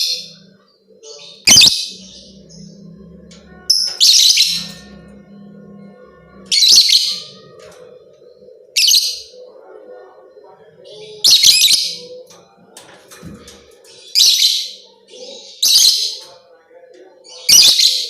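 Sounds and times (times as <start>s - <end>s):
faint low hum: 0.0s - 14.0s
lovebird shrill chirping: 1.4s - 1.9s.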